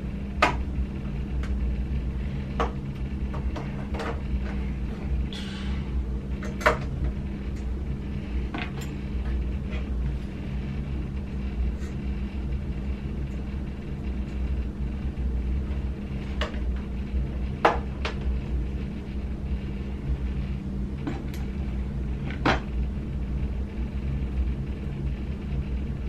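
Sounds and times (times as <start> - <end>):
steady low hum: 0.0 - 26.0
sharp clicks and knocks: 0.4 - 0.7.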